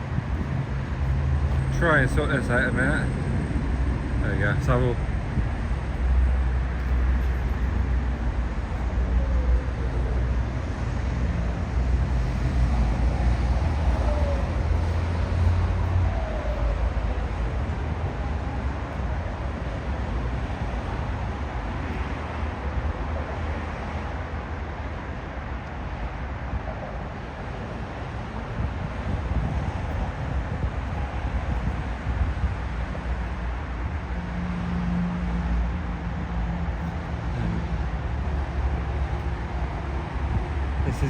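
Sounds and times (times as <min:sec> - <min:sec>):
heavy low rumble: 0:00.0 - 0:06.6
road traffic passing: 0:00.0 - 0:41.0.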